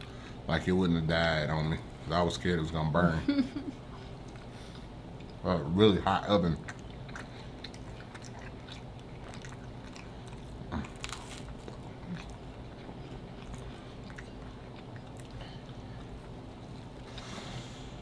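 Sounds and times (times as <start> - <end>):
people chewing pizza: 0.0 - 18.0
crisp bite: 6.7 - 12.8.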